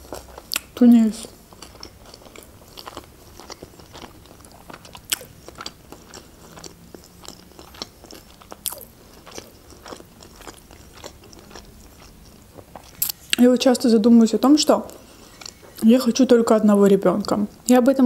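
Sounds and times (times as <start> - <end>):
crunchy chewing: 0.0 - 13.4.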